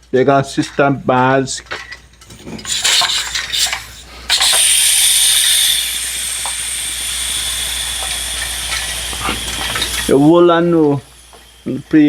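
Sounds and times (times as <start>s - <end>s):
kettle hissing with steam: 2.2s - 12.0s
kettle faint high whistle: 2.6s - 12.0s.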